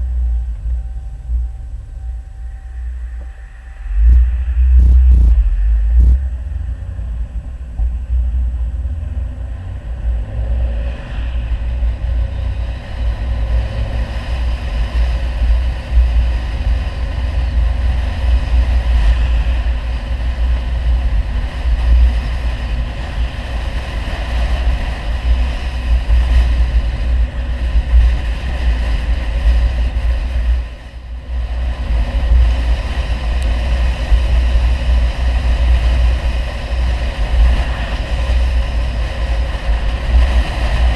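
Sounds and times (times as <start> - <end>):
car engine rumbling: 0.0 - 40.9.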